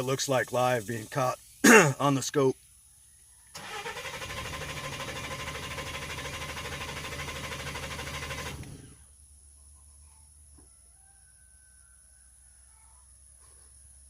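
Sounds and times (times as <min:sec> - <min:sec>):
starter cranking engine: 0:03.6 - 0:09.0.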